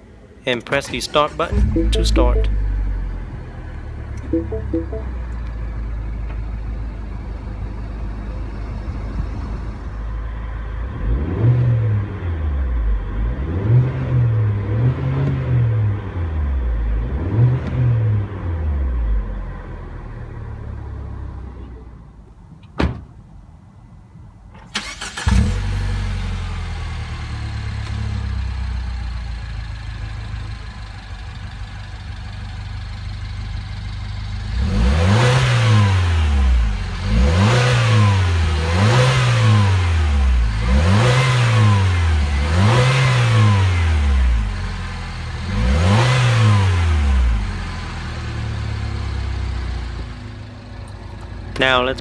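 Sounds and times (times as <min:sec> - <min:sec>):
car engine starting and idling: 0:00.7 - 0:10.0, 0:24.6 - 0:34.6
engine revving: 0:01.5 - 0:02.0, 0:10.9 - 0:12.1, 0:13.1 - 0:15.8, 0:34.5 - 0:44.6, 0:45.4 - 0:47.4.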